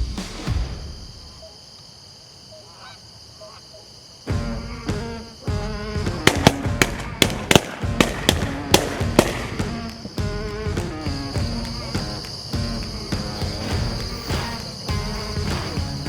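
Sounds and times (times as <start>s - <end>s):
background music: 4.3s - 16.0s
shotgun shots: 6.2s - 10.2s.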